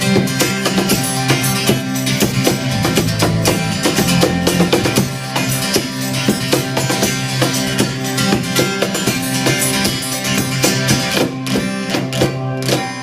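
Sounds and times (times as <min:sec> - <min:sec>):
bass guitar: 0:00.0 - 0:11.4
electric guitars: 0:00.0 - 0:13.0
steady drum beat: 0:01.5 - 0:07.8.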